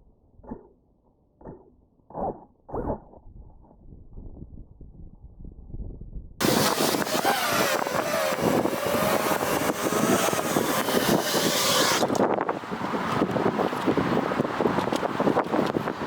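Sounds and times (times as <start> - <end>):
wind noise: 2.7 - 16.0
quadcopter motors whining: 6.4 - 15.9.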